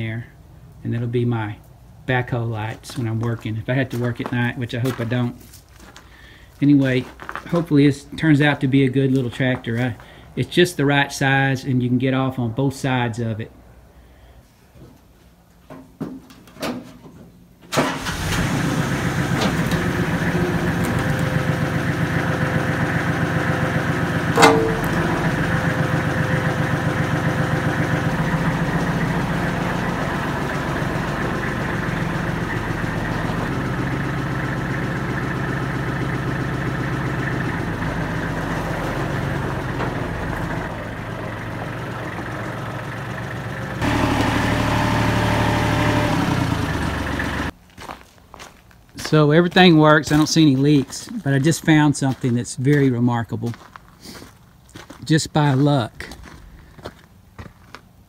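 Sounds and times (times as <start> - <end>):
diesel engine running: 17.7 - 47.6.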